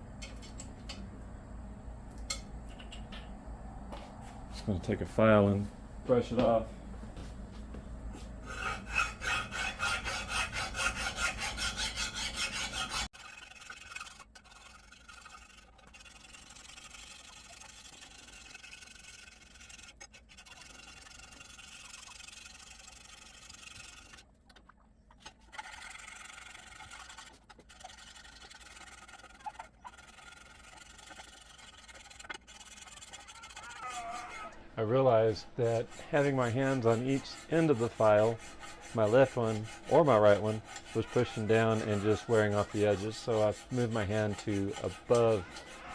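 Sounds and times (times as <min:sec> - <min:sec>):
hand file rasping on metal: 0:08.2 - 0:24.2, 0:25.5 - 0:45.9.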